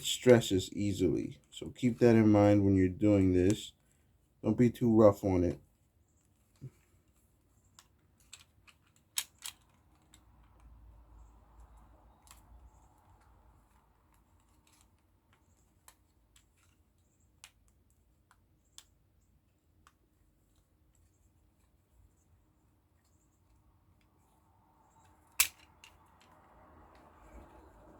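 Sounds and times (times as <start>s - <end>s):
plastic parts clicking: 7.8s - 10.7s, 25.0s - 26.4s.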